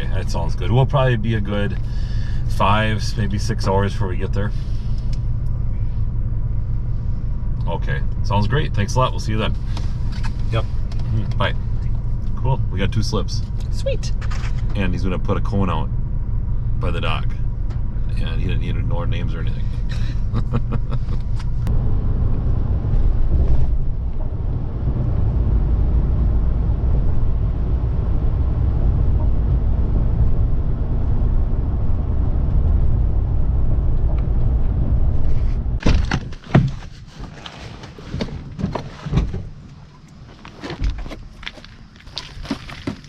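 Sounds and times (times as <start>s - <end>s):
truck driving rumble: 0.0s - 43.0s
knocks and thuds: 35.8s - 37.0s.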